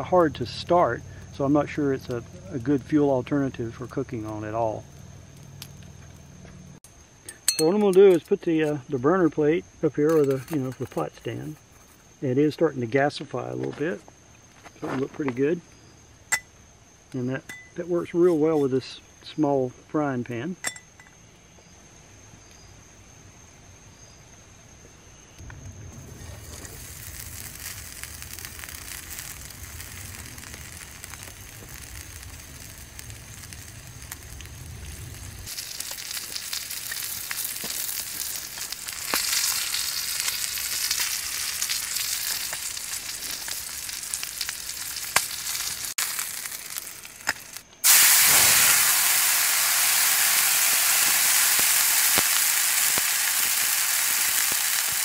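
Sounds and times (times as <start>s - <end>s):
oil sizzling in frying pan: 26.0s - 55.0s.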